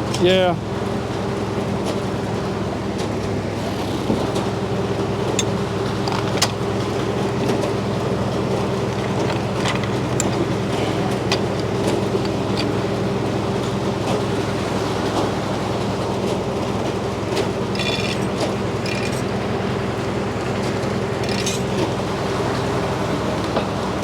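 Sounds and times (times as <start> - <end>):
sawmill droning: 0.0 - 24.0
sharp clicks and knocks: 5.3 - 6.6, 8.7 - 12.9, 17.3 - 19.4.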